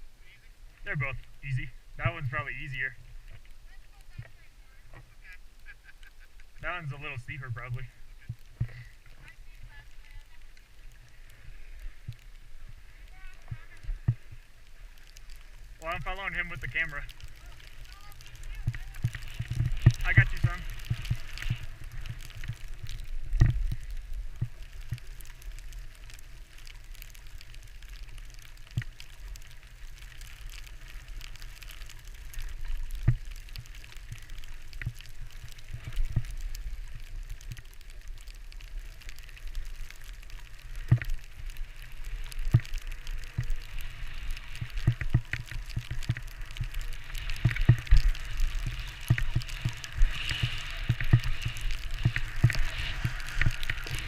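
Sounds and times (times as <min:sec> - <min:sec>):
skis scraping over snow: 0:00.2 - 0:54.0
wind rumble on microphone: 0:16.7 - 0:54.0.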